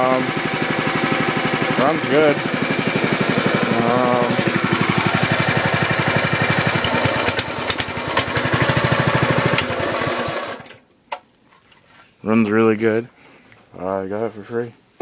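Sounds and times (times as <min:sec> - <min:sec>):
small engine running steadily: 0:00.0 - 0:10.6.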